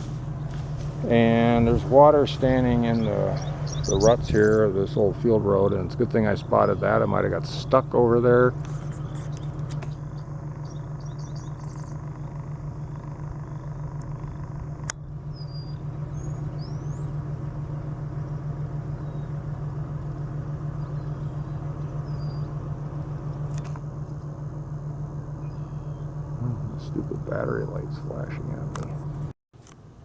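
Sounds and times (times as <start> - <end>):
car engine running: 0.0 - 30.0
faint bird chirps: 2.6 - 4.8, 8.8 - 14.6, 15.3 - 17.2, 18.3 - 19.4, 20.7 - 22.6, 25.3 - 27.7
sharp click: 8.6 - 10.0, 23.3 - 23.9, 28.7 - 29.0.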